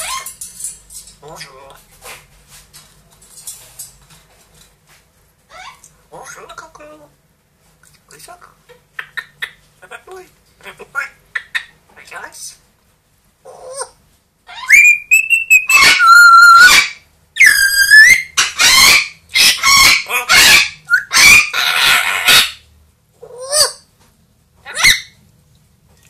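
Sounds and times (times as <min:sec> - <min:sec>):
parrot whistles and squawks: 0:00.0 - 0:00.4, 0:13.5 - 0:22.6, 0:24.6 - 0:25.2.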